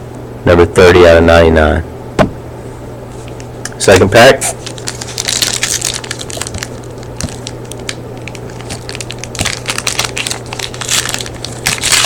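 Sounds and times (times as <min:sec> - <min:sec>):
card pack wrapper tearing and crinkling: 0:04.6 - 0:12.0.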